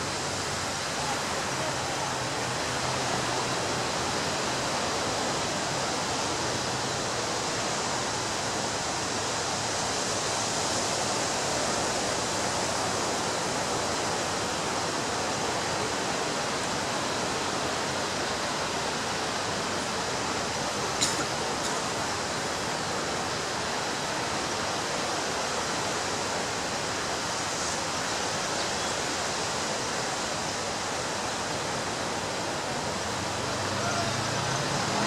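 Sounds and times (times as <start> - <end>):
ocean surf breaking: 29.9 - 35.0.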